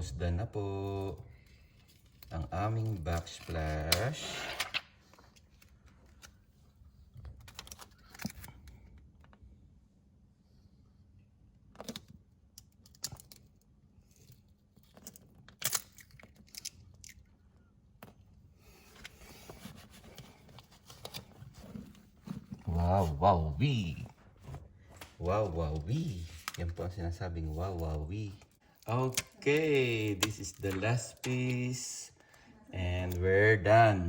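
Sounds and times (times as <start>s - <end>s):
soft peeling rustle: 18.6s - 23.1s.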